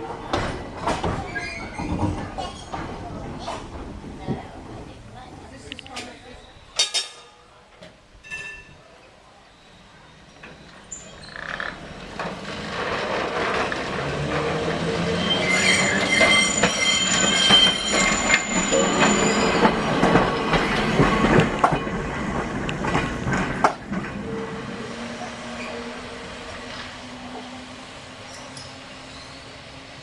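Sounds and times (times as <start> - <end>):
electric tram running on track: 0.0 - 30.0
wheels clicking and rattling on rails: 0.0 - 30.0
high wheel squeal: 14.6 - 20.0.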